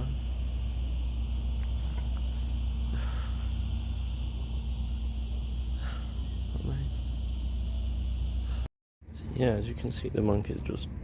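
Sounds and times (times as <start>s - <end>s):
insect chorus: 0.0s - 8.6s.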